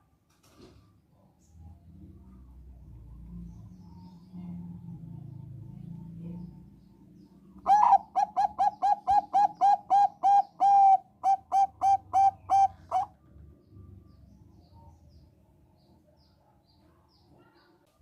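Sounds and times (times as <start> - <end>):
zebra dove cooing: 7.6 - 13.2.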